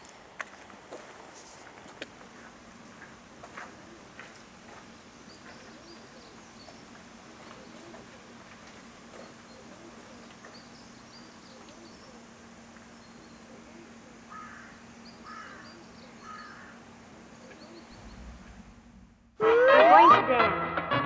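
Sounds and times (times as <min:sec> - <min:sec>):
small birds chirping faintly: 0:00.0 - 0:19.0
bird calling: 0:05.2 - 0:18.6.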